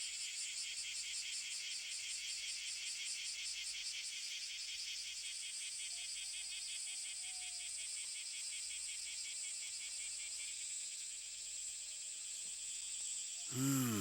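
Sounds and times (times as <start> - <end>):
person speaking: 13.5 - 14.0.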